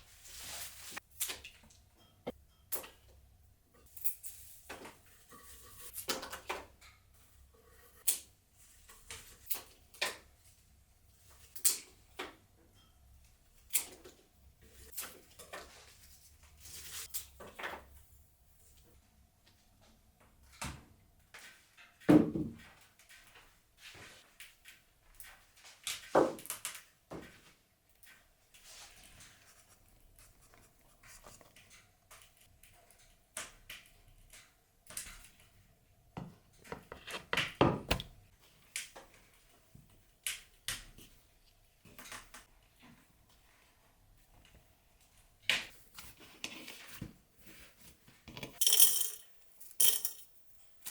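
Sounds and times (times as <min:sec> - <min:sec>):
objects clicking and knocking: 0:48.3 - 0:50.9.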